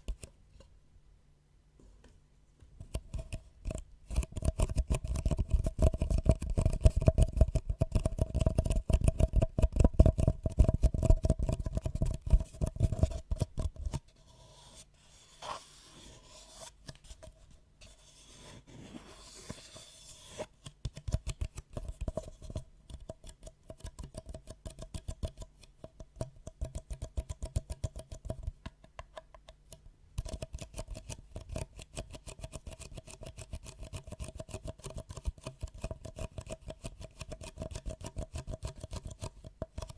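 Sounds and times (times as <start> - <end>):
soft scraping rustle: 14.1 - 20.5.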